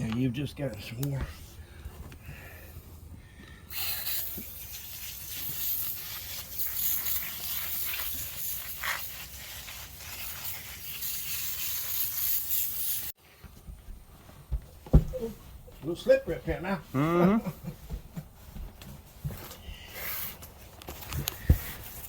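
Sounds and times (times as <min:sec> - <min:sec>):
brush scrubbing metal fins: 0:03.7 - 0:13.1.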